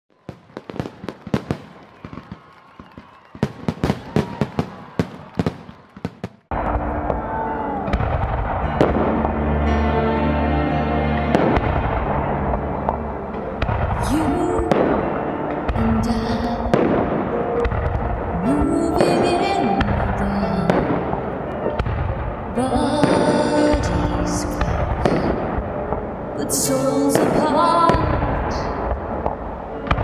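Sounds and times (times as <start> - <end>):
fireworks bangs and pops: 0.1 - 9.4, 11.3 - 30.0
music: 6.5 - 30.0.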